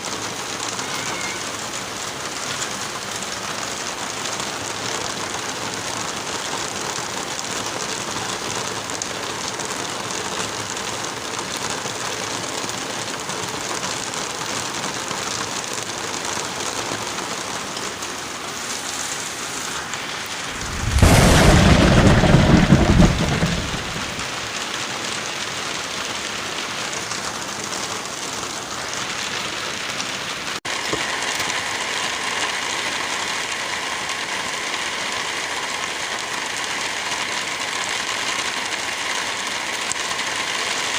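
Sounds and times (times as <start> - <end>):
heavy rain: 0.0 - 40.9
thunderclap: 20.2 - 24.4.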